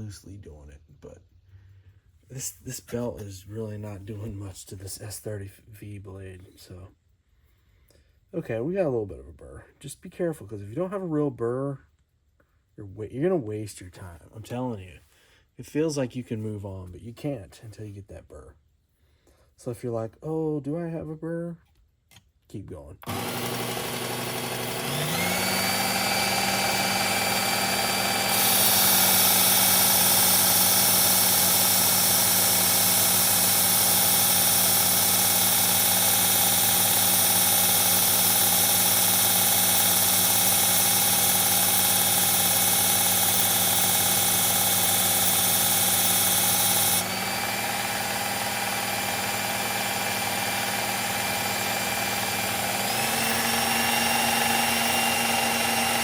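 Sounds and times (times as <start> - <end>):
belt sharpener motor hum: 23.0 - 56.0
blade grinding on belt: 23.0 - 56.0.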